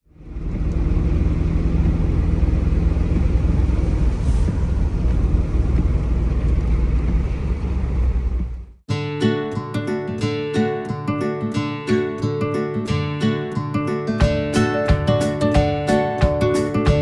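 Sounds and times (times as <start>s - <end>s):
motor vehicle rumbling: 0.0s - 8.8s.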